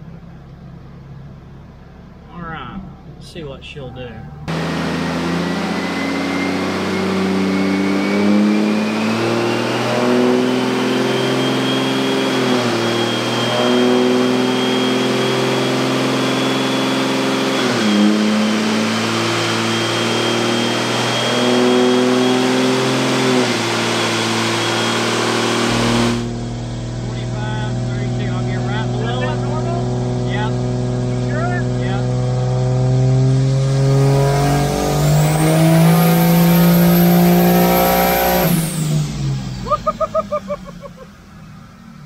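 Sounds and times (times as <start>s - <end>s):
diesel engine full throttle: 0.0s - 42.0s
turbo whistle: 5.6s - 15.6s.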